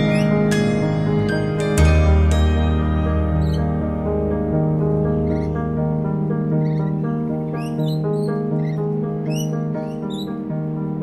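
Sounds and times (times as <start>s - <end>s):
high squeaky chirps: 0.0s - 4.0s, 5.1s - 5.6s, 6.5s - 10.5s
background music of held notes: 0.0s - 11.0s.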